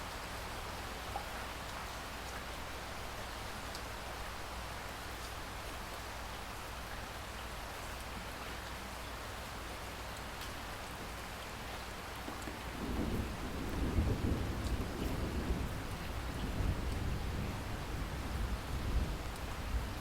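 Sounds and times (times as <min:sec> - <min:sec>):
steady rain falling: 0:00.0 - 0:20.0
low rumble of thunder: 0:12.3 - 0:20.0.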